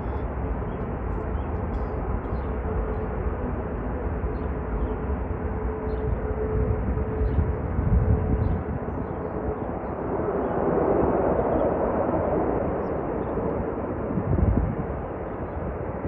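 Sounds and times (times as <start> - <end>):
jet engine roaring: 0.0 - 16.0.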